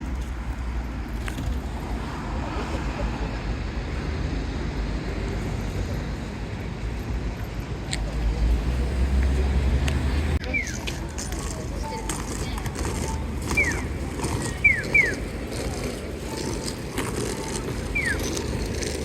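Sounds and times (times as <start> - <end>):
road traffic rumble: 0.0 - 19.0
indistinct voices: 7.9 - 19.0
vehicle passing close: 8.1 - 10.4.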